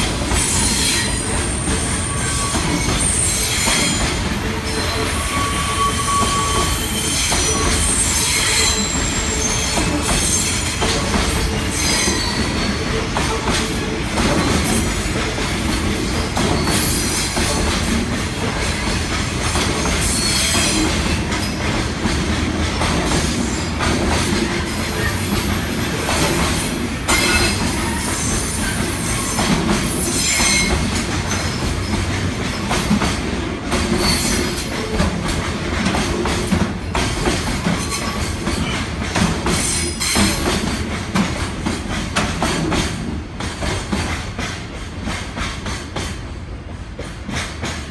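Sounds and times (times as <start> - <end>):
train wheels clicking over rail joints: 0.0 - 47.9
wheel squeals: 0.4 - 10.6, 11.3 - 12.9.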